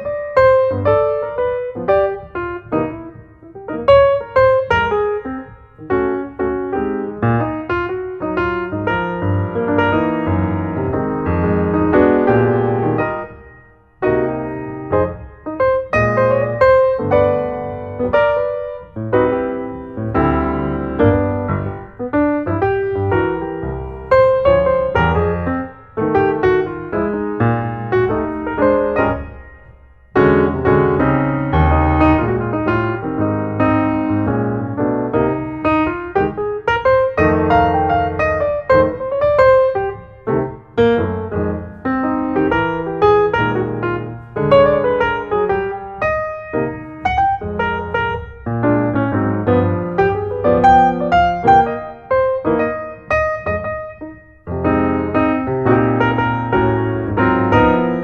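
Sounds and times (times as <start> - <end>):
piano music: 0.0 - 58.0.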